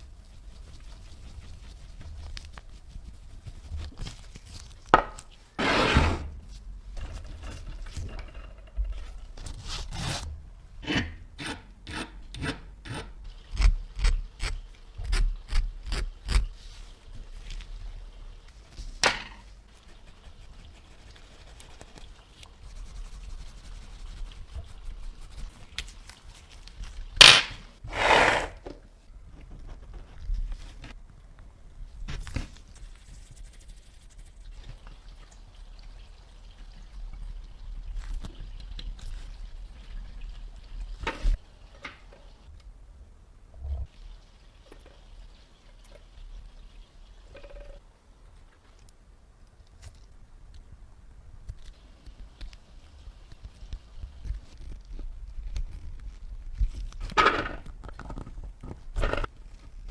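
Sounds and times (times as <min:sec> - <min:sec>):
hand sanding or filing strokes: 0:27.9 - 0:28.6.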